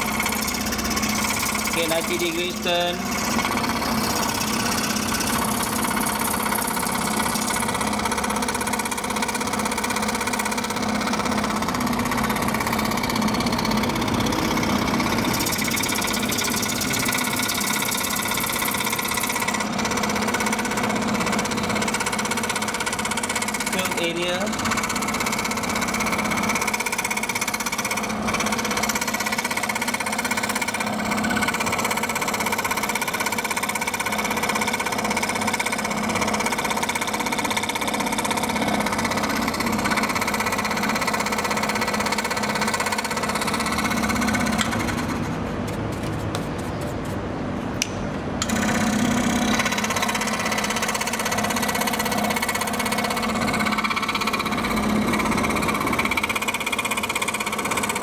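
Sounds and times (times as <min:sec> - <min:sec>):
scroll saw cutting acrylic: 0:00.0 - 0:47.2, 0:48.4 - 0:58.0.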